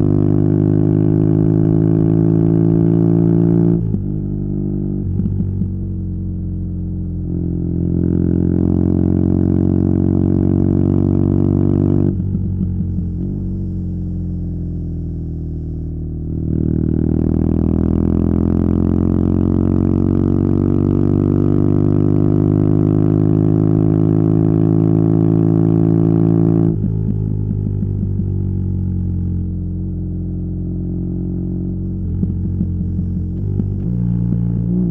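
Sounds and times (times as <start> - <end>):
motorcycle engine droning: 0.0 - 34.9.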